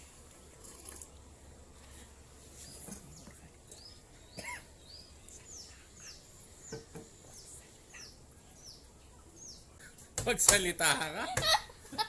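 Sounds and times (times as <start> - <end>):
small bird chirping: 2.6 - 9.8.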